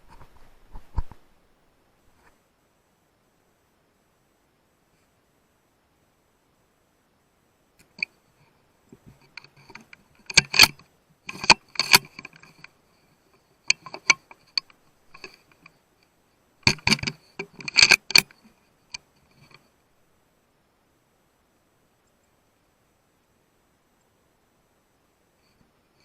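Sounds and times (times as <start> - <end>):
sharp metallic clicks and rattles: 7.8 - 8.1, 9.0 - 12.8, 13.7 - 15.8, 16.6 - 19.6.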